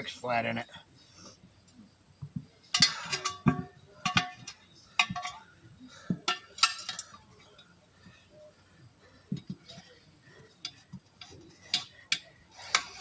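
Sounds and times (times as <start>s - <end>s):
metal tools clinking on wheel rim: 2.6s - 8.2s, 9.3s - 13.0s.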